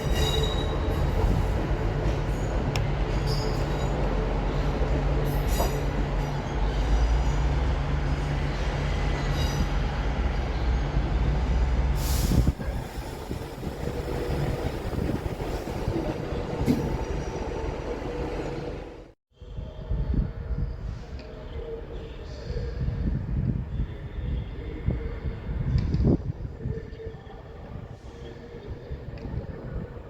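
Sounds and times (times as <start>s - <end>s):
train cars rolling on rails: 0.0s - 19.1s
locomotive rumble: 0.0s - 19.2s.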